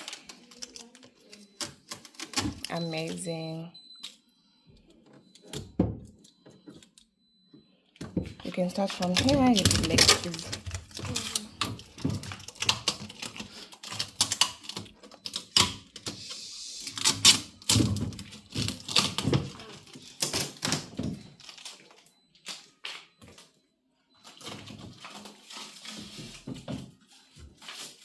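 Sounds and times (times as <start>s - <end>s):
packaging rustling: 0.0s - 3.2s, 8.9s - 15.2s.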